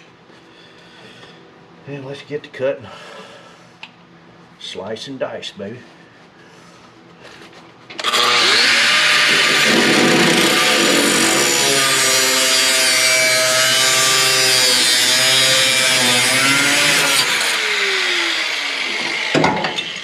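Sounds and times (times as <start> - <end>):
angle grinder cutting metal: 8.0 - 20.0.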